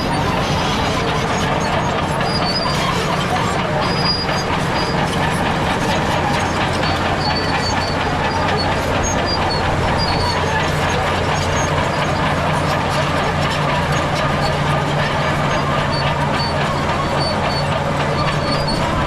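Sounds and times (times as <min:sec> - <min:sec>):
bulldozer diesel engine: 0:00.0 - 0:19.0
short high squeaks: 0:00.0 - 0:19.0
steel tracks rattling: 0:00.0 - 0:19.0.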